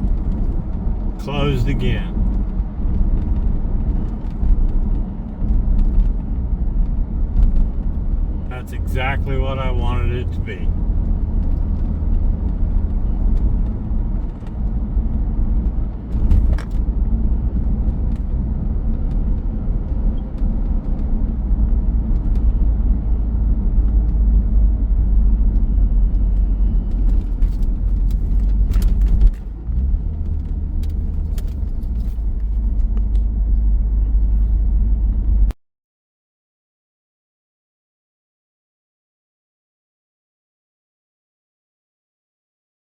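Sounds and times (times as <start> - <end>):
road noise: 0.0 - 35.5
low rumble of car engine: 0.0 - 35.6.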